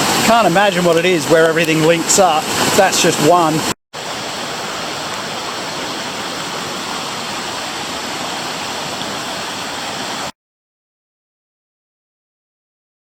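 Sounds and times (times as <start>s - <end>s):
floodwater rushing: 0.0s - 10.3s.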